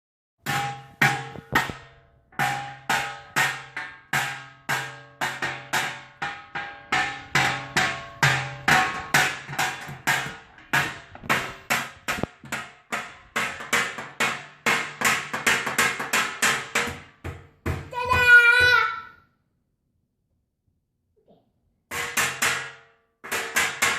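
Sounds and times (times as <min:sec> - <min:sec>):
banging strikes with short ring: 0:00.4 - 0:17.1.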